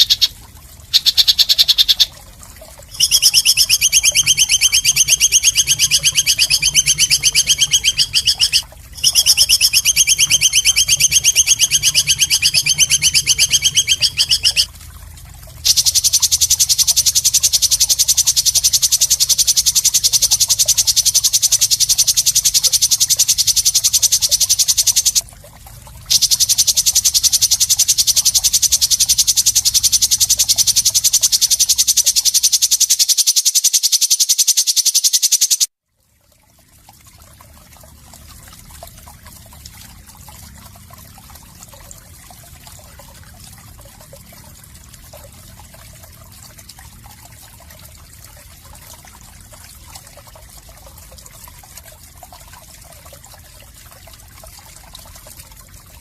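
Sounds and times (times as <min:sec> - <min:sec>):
songbird rattling trill: 0:00.0 - 0:02.2, 0:02.9 - 0:14.7, 0:15.6 - 0:25.2, 0:26.1 - 0:35.7.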